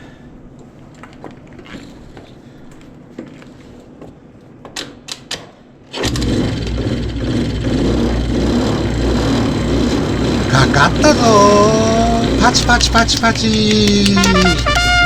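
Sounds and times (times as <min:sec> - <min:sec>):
scooter engine running: 0:06.0 - 0:14.6
sharp clicks: 0:12.2 - 0:14.7.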